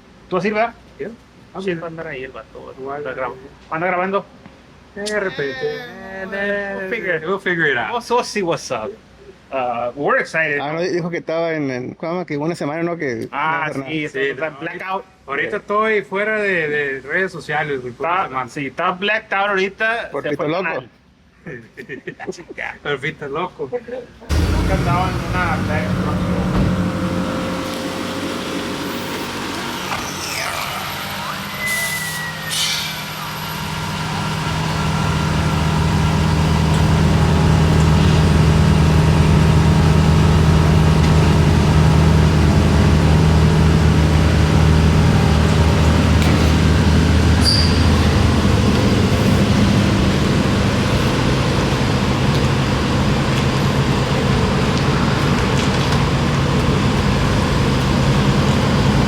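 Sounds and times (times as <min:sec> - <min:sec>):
truck engine drone from inside: 0:24.3 - 0:59.0.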